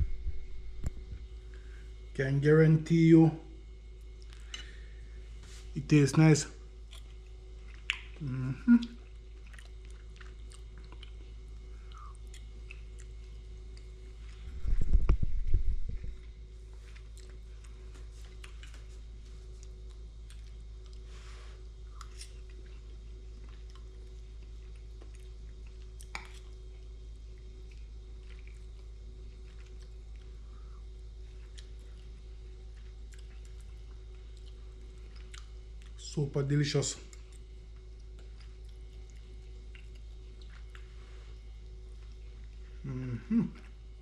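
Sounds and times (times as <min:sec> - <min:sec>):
loud low rumble: 0:00.0 - 0:01.3, 0:14.4 - 0:16.3
steady low hum: 0:00.0 - 0:44.0
person chewing food: 0:06.7 - 0:36.0, 0:37.0 - 0:43.9.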